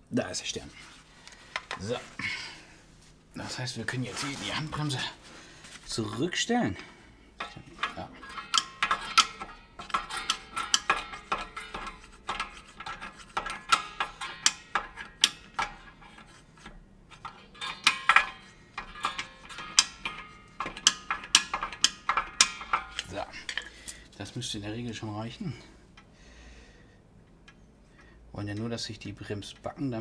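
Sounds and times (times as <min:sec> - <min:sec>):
metallic clicks and scrapes: 0:06.8 - 0:24.4.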